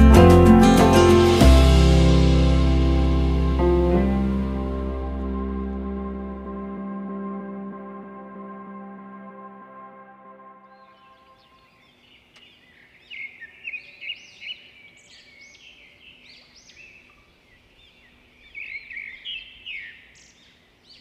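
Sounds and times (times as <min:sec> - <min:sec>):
faint outdoor background noise: 0:01.4 - 0:21.0
birds chirping: 0:10.6 - 0:21.0.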